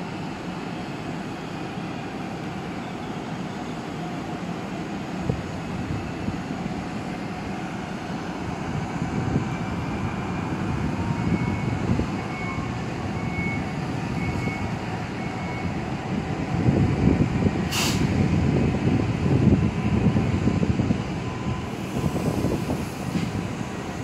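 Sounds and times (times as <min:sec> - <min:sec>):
train rolling with low rumble: 0:00.0 - 0:24.0
faint high beep: 0:11.2 - 0:15.7
short sharp hiss: 0:17.7 - 0:18.1.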